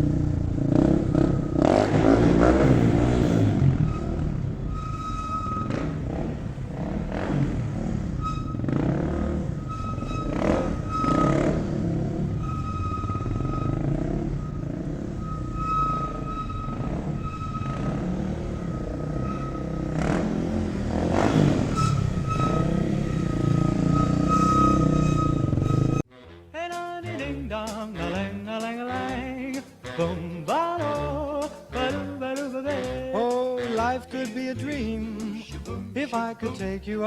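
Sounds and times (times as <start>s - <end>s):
car engines revving: 0.0s - 26.0s
high steady tone: 0.6s - 26.0s.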